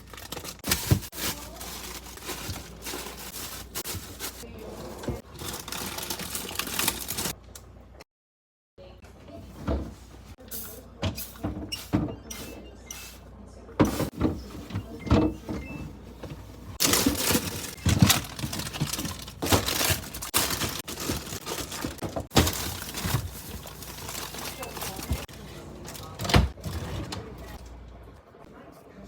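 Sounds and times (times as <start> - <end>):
items knocking and clunking: 0.1 - 7.3, 13.8 - 27.6.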